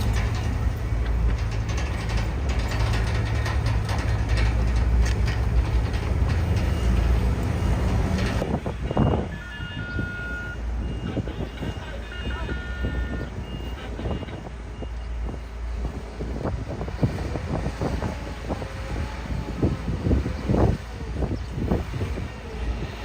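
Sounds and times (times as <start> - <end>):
rattling metal clanks: 0.0 - 8.5
heavy diesel engine rumble: 0.0 - 23.0
reversing beeper: 8.8 - 15.4.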